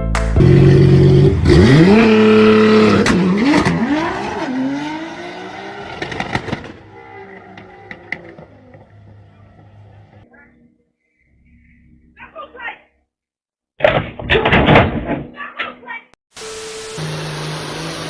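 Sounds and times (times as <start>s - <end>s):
vehicle engine revving: 0.4s - 10.2s, 17.0s - 18.0s.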